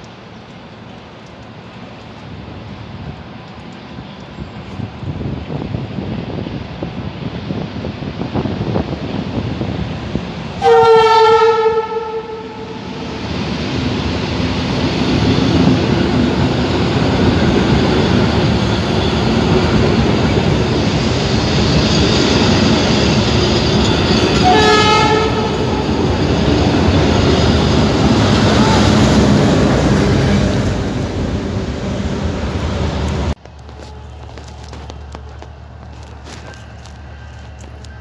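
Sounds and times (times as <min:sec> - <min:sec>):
train running past on rails: 0:00.0 - 0:38.0
train horn: 0:10.6 - 0:13.1, 0:24.1 - 0:26.0, 0:28.2 - 0:29.3.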